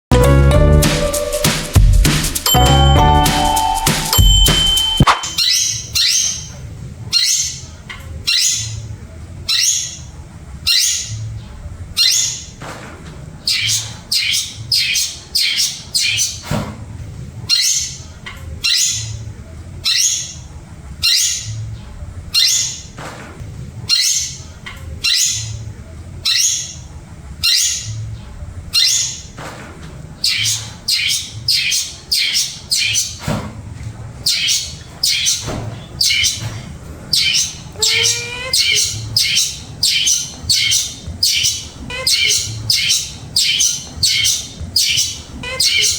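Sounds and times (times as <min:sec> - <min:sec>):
bird harsh scratchy calls: 0:30.2 - 0:33.2, 0:34.2 - 0:45.9.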